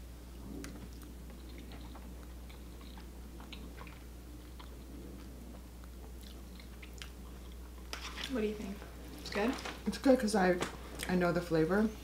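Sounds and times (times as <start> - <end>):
person chewing crunchy food: 0.6 - 8.3.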